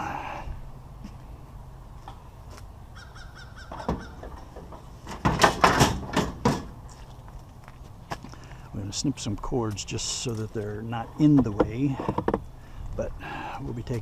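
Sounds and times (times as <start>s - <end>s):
crow cawing: 3.0s - 4.1s.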